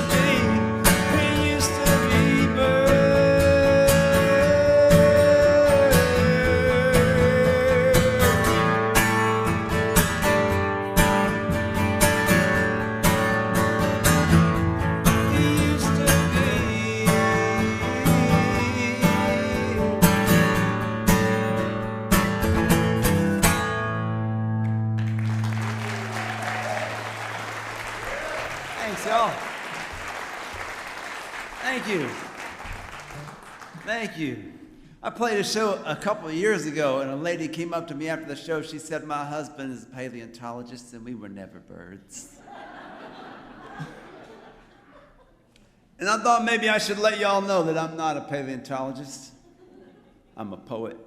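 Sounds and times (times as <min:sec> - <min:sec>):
acoustic guitar playing: 0:00.0 - 0:35.0
audience applause: 0:24.7 - 0:34.0.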